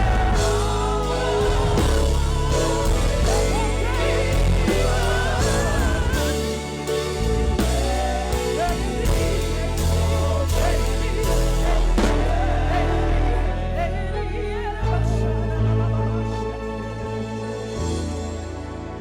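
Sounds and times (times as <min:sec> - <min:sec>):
band with bass and drums: 0:00.0 - 0:15.0
person singing: 0:00.0 - 0:18.2.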